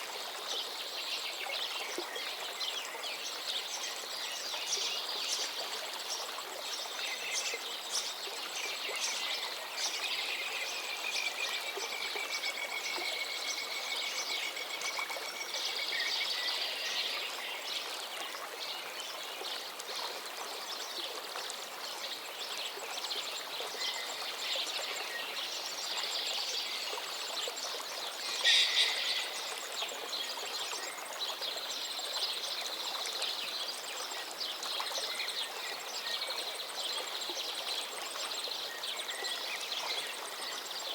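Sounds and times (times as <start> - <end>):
river flowing: 0.0 - 40.9
birds singing: 28.2 - 30.9
bird trilling: 28.4 - 29.4.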